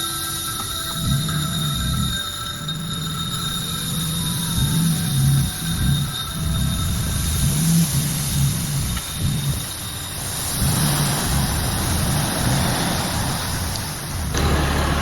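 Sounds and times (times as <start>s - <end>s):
tractor engine running: 0.0s - 15.0s
broad hiss: 6.3s - 15.0s.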